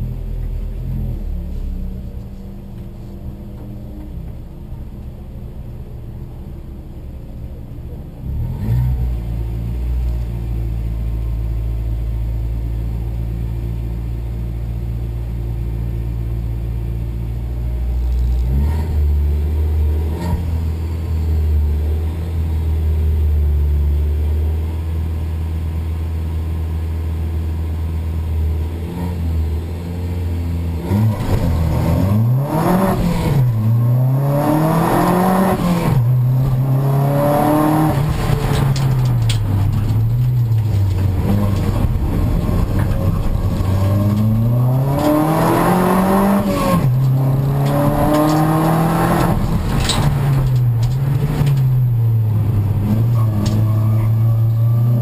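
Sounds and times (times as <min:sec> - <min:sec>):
race car engine revving: 0:30.7 - 0:55.0.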